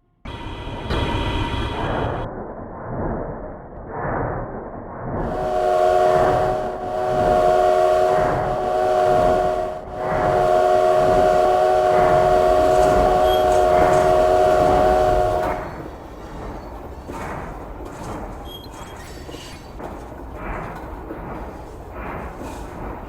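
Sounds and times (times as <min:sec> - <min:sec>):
running train rhythmic pulsing: 0:00.0 - 0:02.3, 0:05.2 - 0:23.0
train chord whistle: 0:05.2 - 0:15.9.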